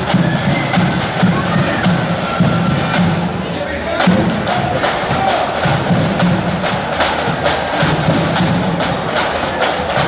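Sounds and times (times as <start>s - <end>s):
flute band playing: 0.0s - 10.0s
snare drum strikes: 0.0s - 10.0s
bass drum: 4.0s - 10.0s.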